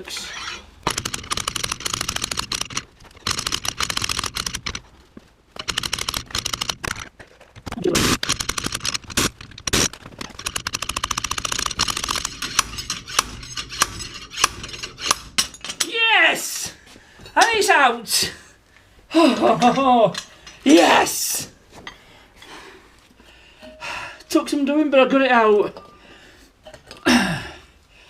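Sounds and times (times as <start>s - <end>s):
pneumatic air hammer: 11.9s - 15.6s.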